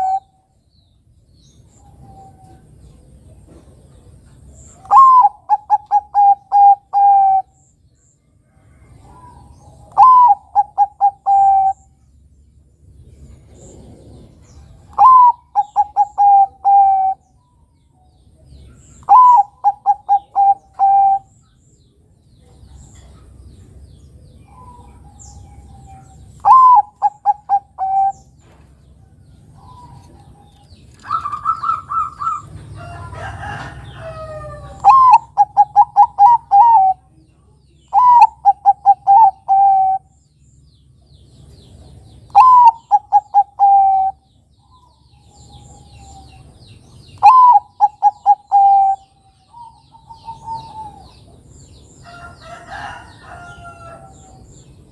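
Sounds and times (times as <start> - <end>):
dove cooing: 0.0 - 0.3, 4.8 - 7.6, 9.0 - 11.9, 13.5 - 17.2, 19.0 - 21.3, 24.5 - 28.3, 29.5 - 37.1, 37.9 - 40.1, 42.3 - 46.5, 47.2 - 51.3.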